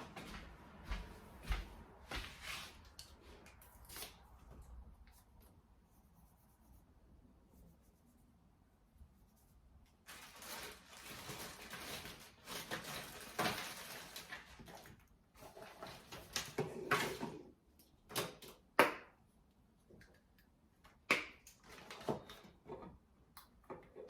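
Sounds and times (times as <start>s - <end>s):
rustling of small packets: 10.0s - 17.2s.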